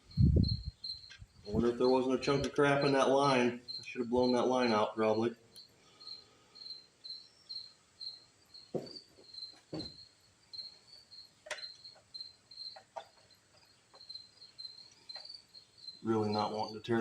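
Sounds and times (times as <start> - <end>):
cricket chirping: 0.0 - 17.0
dull knocks: 8.7 - 10.0.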